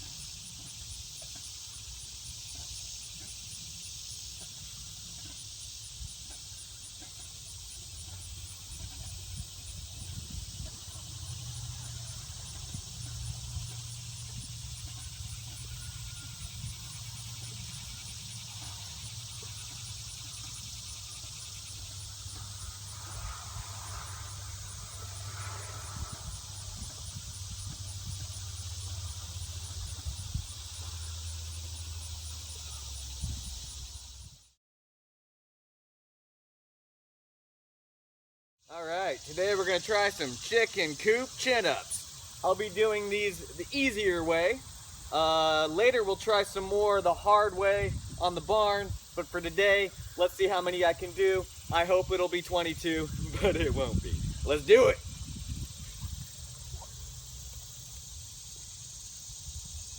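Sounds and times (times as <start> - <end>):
high even hiss: 38.7 - 59.9.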